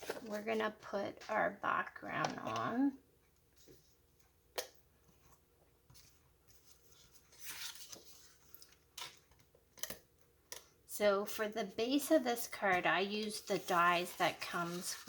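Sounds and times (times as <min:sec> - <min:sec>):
paper rustling: 0:05.9 - 0:09.3, 0:12.6 - 0:15.0.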